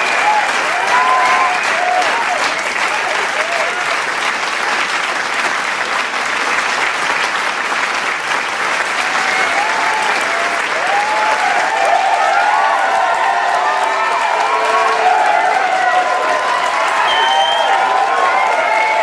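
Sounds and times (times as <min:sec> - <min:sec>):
whoops and shouted cheers: 0:00.0 - 0:03.8, 0:09.0 - 0:19.0
crowd applauding: 0:00.0 - 0:19.0.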